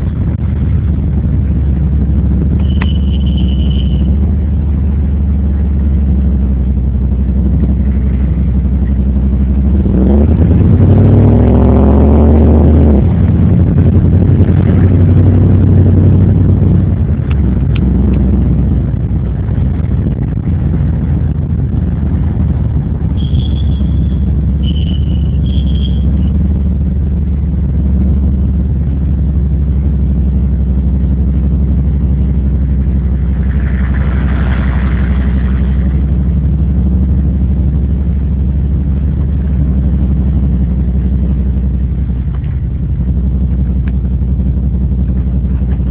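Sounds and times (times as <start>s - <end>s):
car engine drone inside cabin: 0.0s - 45.9s
short high chirps: 2.6s - 4.1s, 23.2s - 26.3s.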